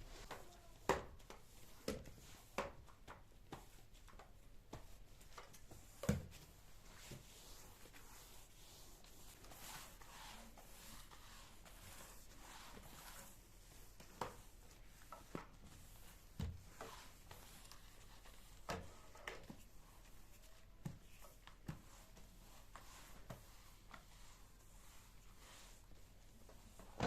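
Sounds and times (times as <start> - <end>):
soft rustling: 0.0 - 27.0.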